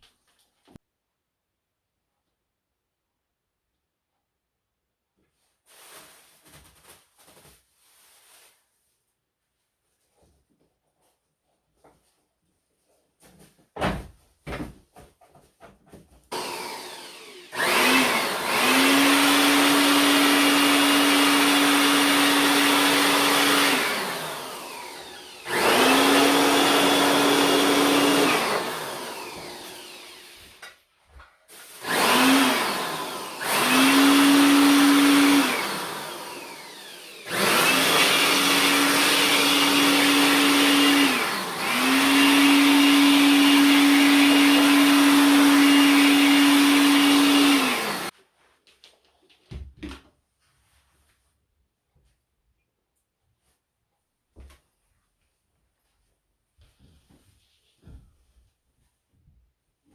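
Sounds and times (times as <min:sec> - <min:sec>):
electric motor tool spinning: 0:16.3 - 0:30.6, 0:31.7 - 0:48.1.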